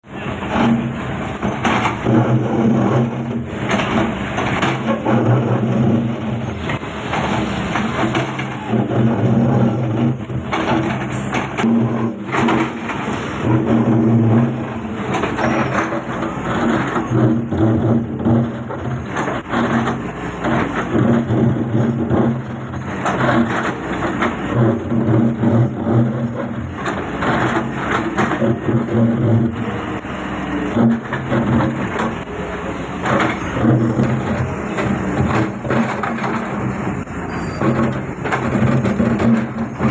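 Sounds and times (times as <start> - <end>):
excavator diesel engine under load: 0.0 - 39.9
short knocks and crackles: 33.0 - 39.9.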